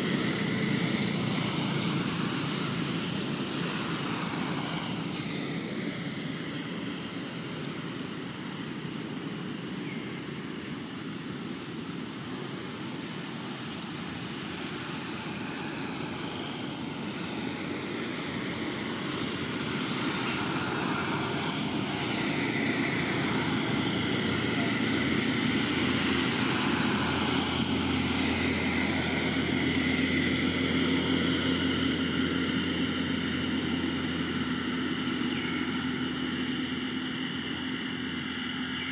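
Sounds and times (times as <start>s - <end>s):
engine drone: 0.0s - 38.9s.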